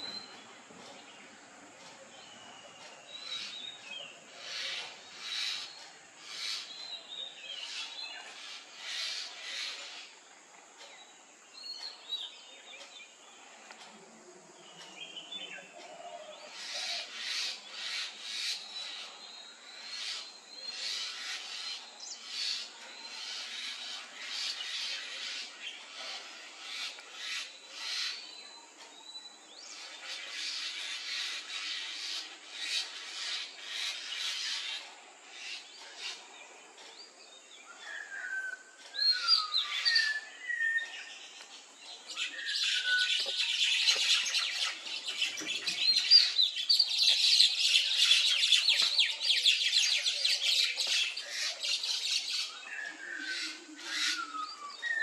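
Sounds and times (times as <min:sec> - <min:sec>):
birds chattering squawks: 0:00.0 - 0:10.2, 0:14.6 - 0:55.0.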